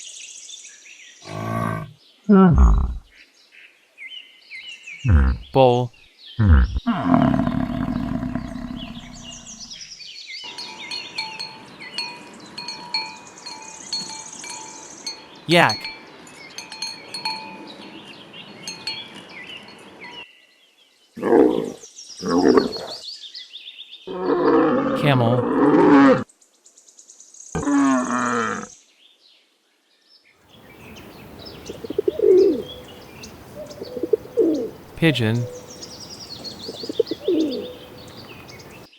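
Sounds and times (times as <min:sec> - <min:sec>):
camel groaning: 0:01.3 - 0:03.0, 0:05.0 - 0:05.6, 0:06.4 - 0:09.7
low coo: 0:01.3 - 0:03.0, 0:31.0 - 0:38.8
birds chirping: 0:04.9 - 0:09.9, 0:30.5 - 0:38.9
small bells ringing: 0:10.5 - 0:17.9.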